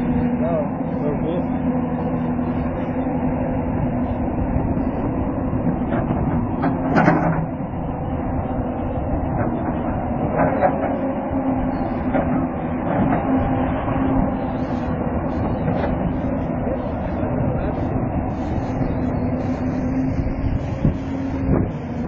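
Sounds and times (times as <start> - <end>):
heavy machine engine humming: 0.0 - 22.0
clanks and knocks: 5.8 - 7.5.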